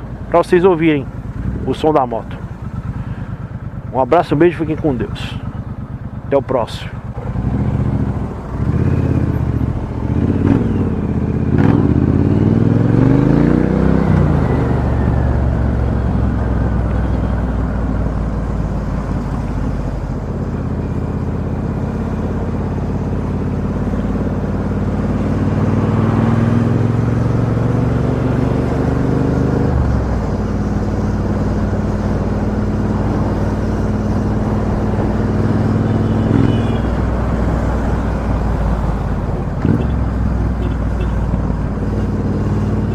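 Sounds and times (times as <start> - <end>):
motorcycle engine accelerating: 6.9 - 42.9.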